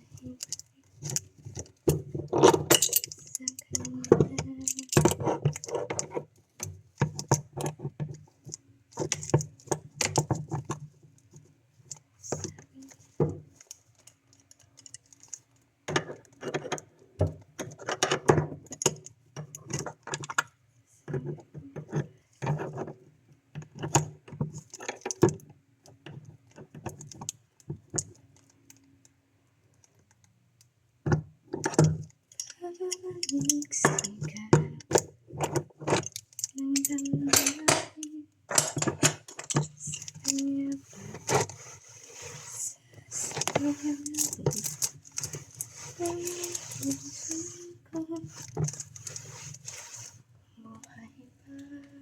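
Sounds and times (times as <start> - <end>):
metal tools clicking and clinking: 0.2 - 6.2, 31.6 - 41.6, 42.2 - 50.0.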